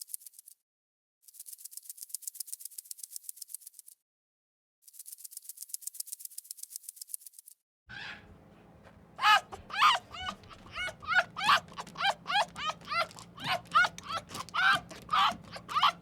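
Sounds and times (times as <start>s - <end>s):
high-pitched animal calls: 7.9s - 16.0s.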